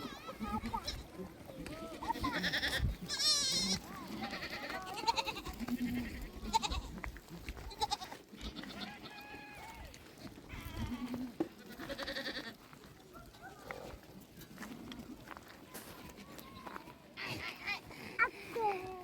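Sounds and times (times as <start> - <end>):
goats bleating: 0.0 - 13.6.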